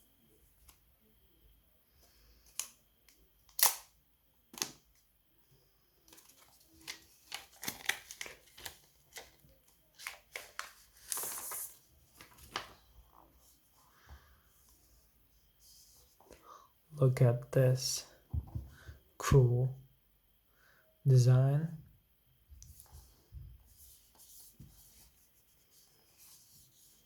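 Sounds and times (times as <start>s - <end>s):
packaging rustling: 6.1s - 12.8s.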